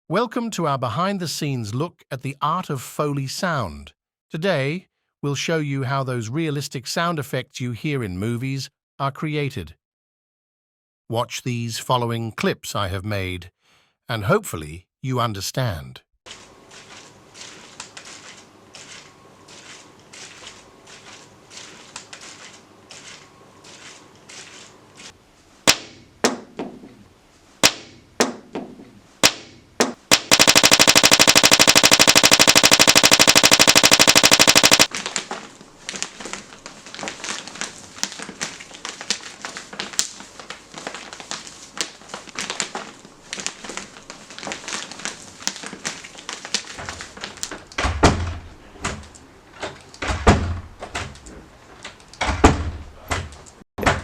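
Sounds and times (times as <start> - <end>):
sharp knocks and clicks: 29.2 - 34.9
dense crackling: 30.1 - 34.9
fast even rattle: 30.1 - 34.9.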